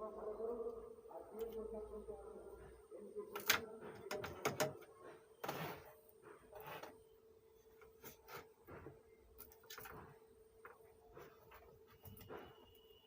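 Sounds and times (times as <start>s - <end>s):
faint steady hum: 0.0s - 13.0s
scraping rustle: 5.4s - 7.0s.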